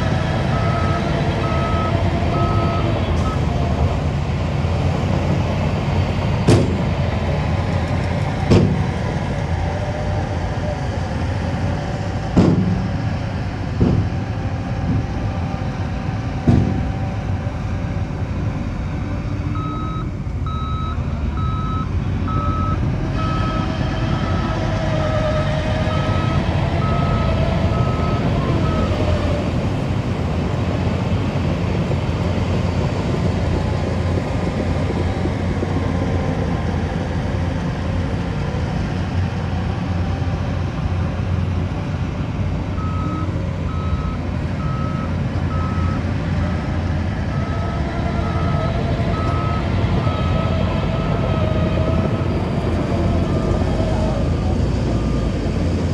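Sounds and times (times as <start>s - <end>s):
diesel engines of earthmoving machinery: 0.0s - 55.9s
reversing alarm beeping: 0.5s - 3.5s, 19.6s - 23.6s, 42.8s - 46.1s, 47.3s - 52.3s.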